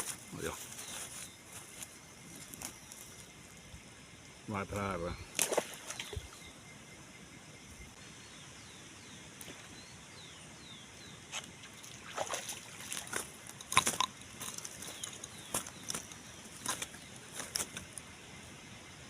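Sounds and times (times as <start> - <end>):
faint bird chirps: 0.0 - 13.1.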